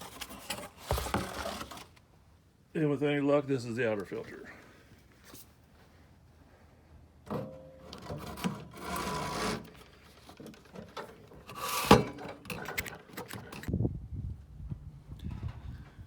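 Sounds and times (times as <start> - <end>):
air filter rubbing and scraping: 7.9 - 13.7.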